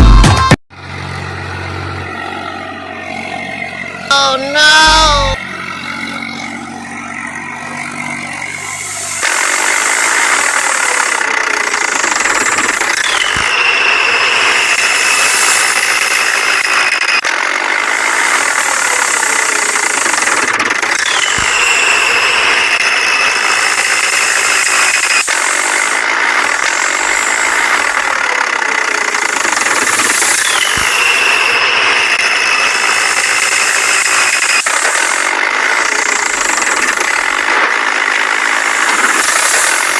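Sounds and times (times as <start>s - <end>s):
tractor engine rattling: 0.8s - 39.9s
short falling squeal: 12.9s - 17.1s, 21.0s - 25.3s, 30.2s - 34.7s.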